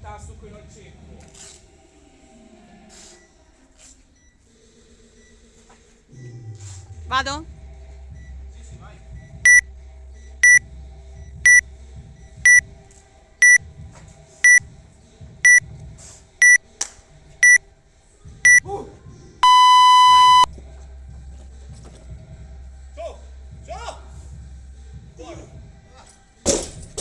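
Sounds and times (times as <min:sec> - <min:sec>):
long lower tone: 0:19.4 - 0:20.5
short high beeps: 0:19.4 - 0:20.5.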